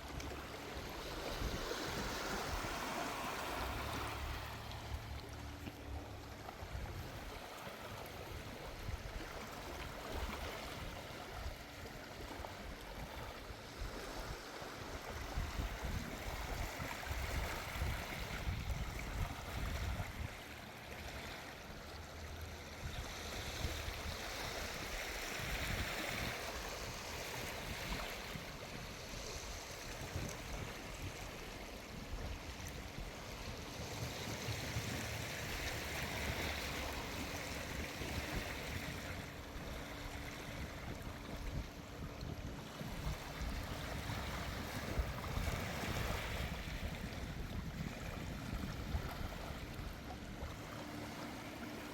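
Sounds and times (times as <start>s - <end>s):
small waves on sandy shore: 0.0s - 51.9s
wind gusting on microphone: 12.9s - 20.4s, 22.8s - 51.8s.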